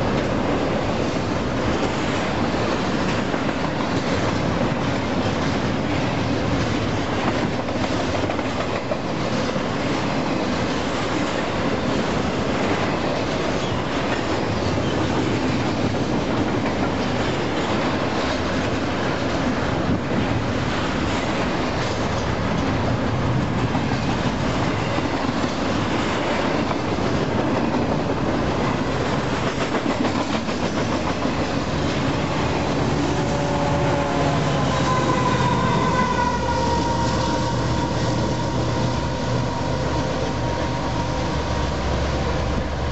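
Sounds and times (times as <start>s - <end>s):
train wheels rumbling on rails: 0.0s - 42.9s
locomotive engines humming: 26.9s - 42.9s.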